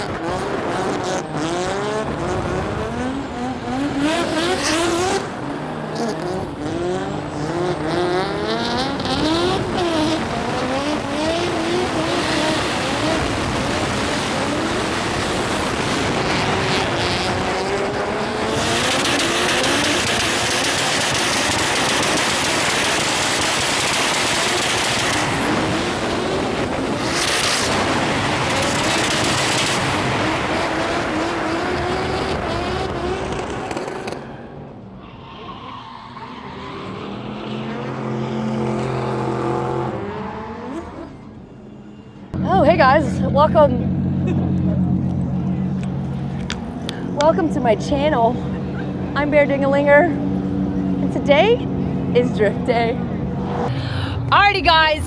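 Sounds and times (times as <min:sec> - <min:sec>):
tires squealing: 0:00.0 - 0:42.1
car engines revving: 0:00.0 - 0:55.0.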